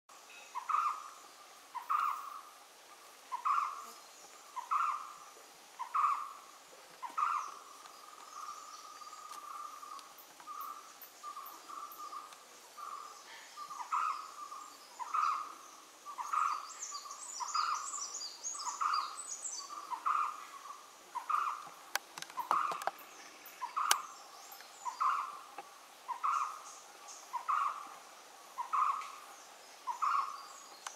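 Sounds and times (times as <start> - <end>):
higher bird chirps: 22.4 - 25.5
sharp clicks: 23.8 - 24.1.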